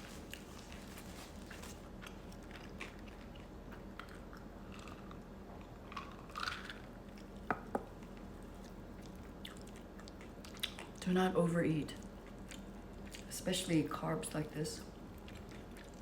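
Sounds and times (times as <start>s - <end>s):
chewing food: 0.0s - 11.2s, 11.8s - 13.4s, 14.8s - 16.0s.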